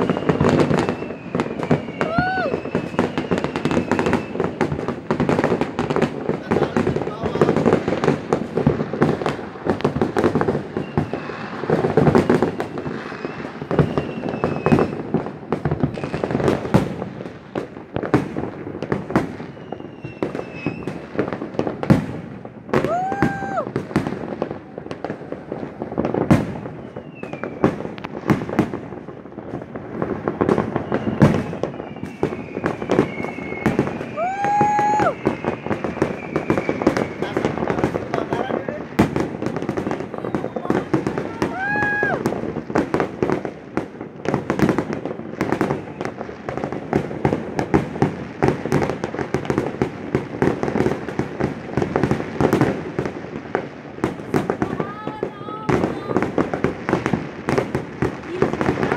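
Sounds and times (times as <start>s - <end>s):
falling whistles: 0.0s - 4.6s, 10.8s - 11.4s, 12.2s - 14.9s, 19.4s - 21.0s, 26.7s - 27.6s, 30.7s - 37.6s
fireworks bangs and crackles: 0.0s - 58.9s.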